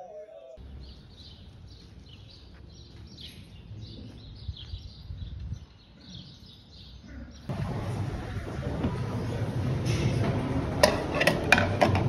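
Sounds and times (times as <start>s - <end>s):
small birds chirping: 0.6s - 7.5s.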